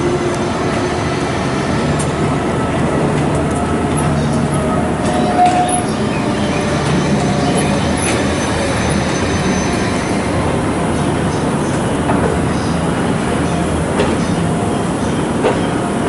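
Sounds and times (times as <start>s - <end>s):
brief wheel squeal: 4.6s - 10.4s.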